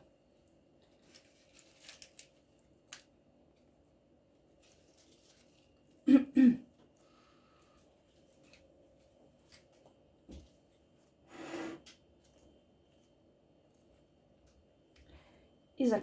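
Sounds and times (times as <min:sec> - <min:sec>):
woman coughing: 0:06.1 - 0:06.6.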